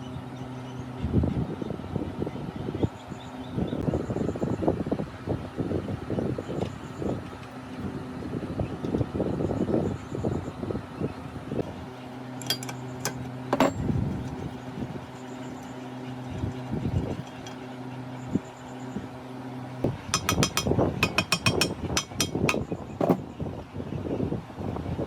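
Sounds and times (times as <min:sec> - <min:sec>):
metal parts clinking: 0:12.4 - 0:14.4
sharp metallic clicks: 0:20.2 - 0:22.6.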